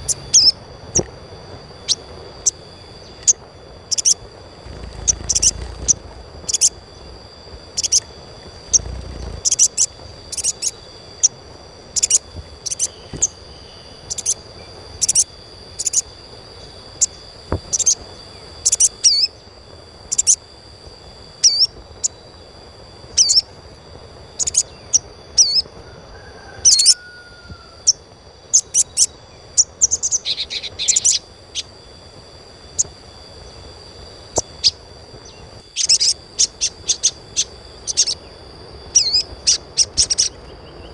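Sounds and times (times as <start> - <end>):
bird chirping high and sharp: 3.2 - 6.8.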